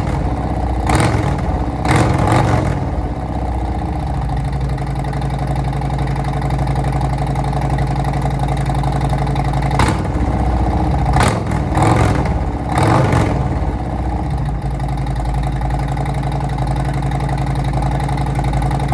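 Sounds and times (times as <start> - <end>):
motorcycle engine idling: 0.0 - 18.9
motorcycle throttle blips: 0.0 - 18.9.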